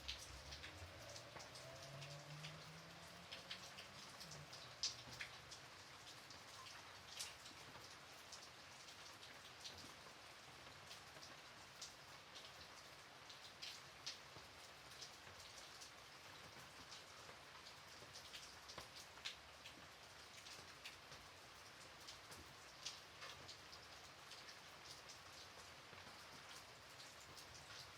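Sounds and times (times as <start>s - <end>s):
light rain: 0.0s - 27.9s
raindrops ticking: 0.0s - 27.9s.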